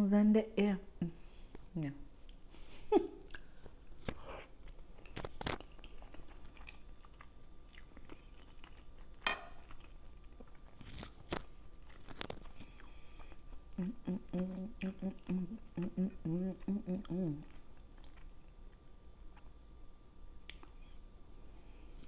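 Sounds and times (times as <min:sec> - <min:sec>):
mouth clicks and smacks: 0:03.2 - 0:04.2, 0:20.5 - 0:20.8
person chewing and crunching: 0:03.2 - 0:21.0
voice humming: 0:13.7 - 0:17.6.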